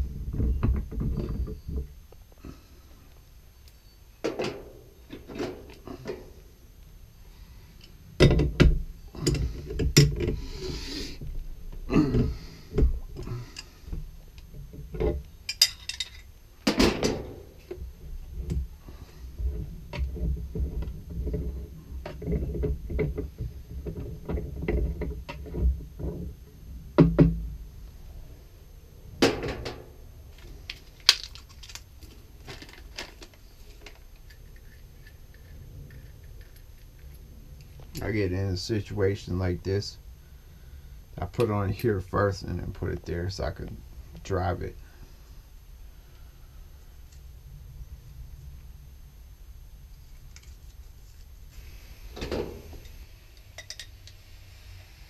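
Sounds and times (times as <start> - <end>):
clanks of tools on brass fittings: 8.2 - 10.4, 15.5 - 17.2, 53.6 - 53.9.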